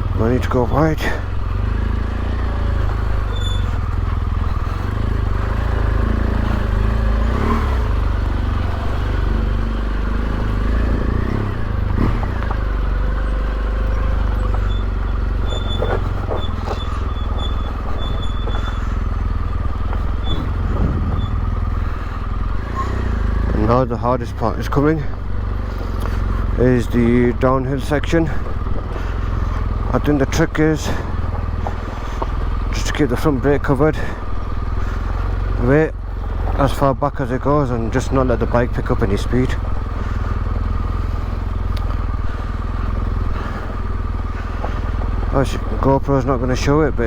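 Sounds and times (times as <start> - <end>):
motorcycle engine rumbling: 0.0 - 47.0.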